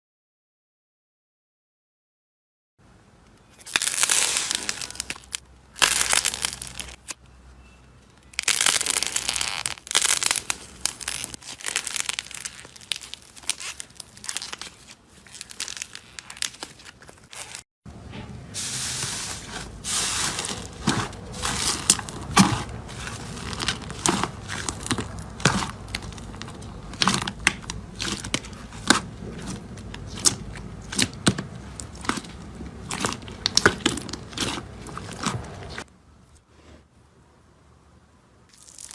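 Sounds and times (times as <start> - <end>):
slime crinkling and popping: 3.5 - 7.2, 8.2 - 17.6, 20.0 - 35.8, 38.5 - 38.9.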